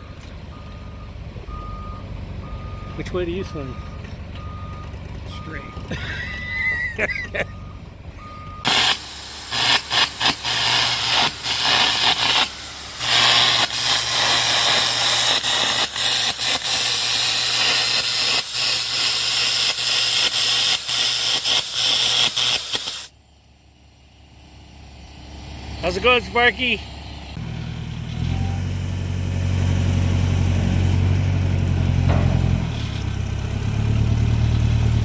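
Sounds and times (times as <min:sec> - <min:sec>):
cutting torch hissing: 0:08.6 - 0:27.4.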